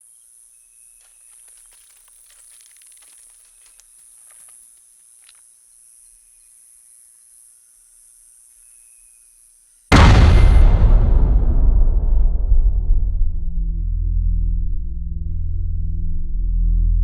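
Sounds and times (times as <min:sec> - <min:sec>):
soft crackles and snaps: 0:01.0 - 0:05.5.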